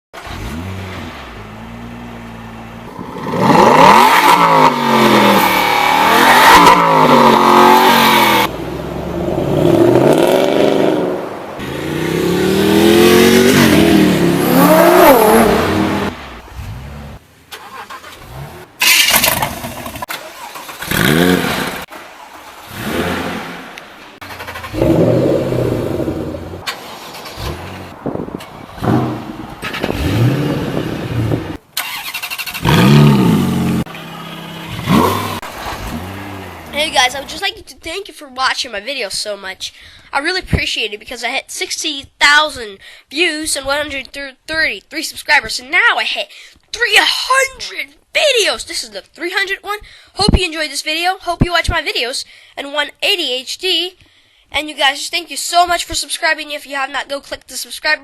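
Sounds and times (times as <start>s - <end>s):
car engines revving hard: 0.2s - 17.2s, 18.2s - 37.4s.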